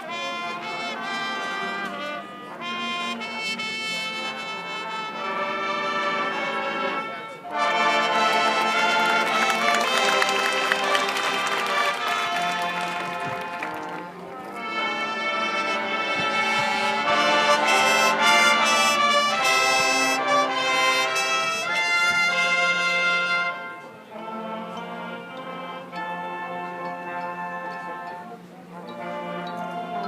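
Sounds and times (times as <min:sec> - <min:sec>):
brass band sustained chords: 0:00.0 - 0:30.0.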